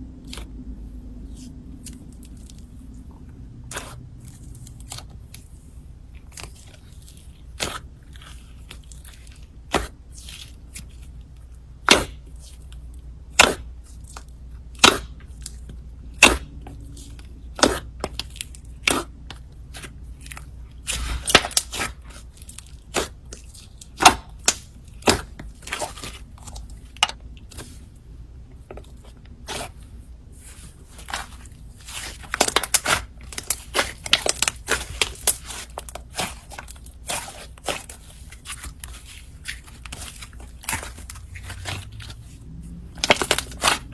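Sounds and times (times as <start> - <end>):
slime popping and crackling: 31.0 - 42.1, 43.0 - 43.9.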